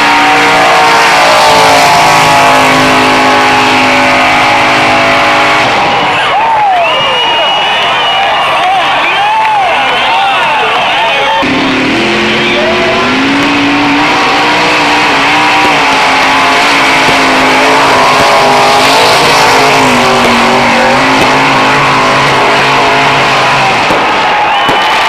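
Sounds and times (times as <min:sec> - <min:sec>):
car engine revving high: 0:00.0 - 0:06.2, 0:11.3 - 0:25.0.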